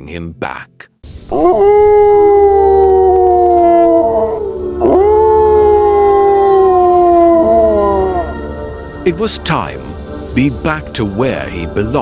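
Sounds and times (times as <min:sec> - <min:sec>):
wolf howling: 0:01.3 - 0:08.6.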